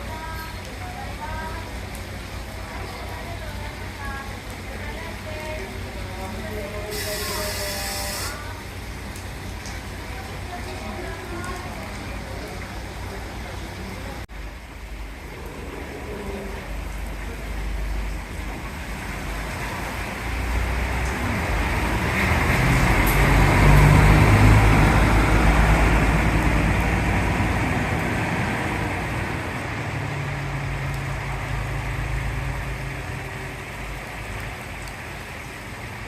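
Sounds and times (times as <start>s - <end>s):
tyre noise on wet road: 0.0s - 36.0s
bus engine hum: 21.3s - 34.2s.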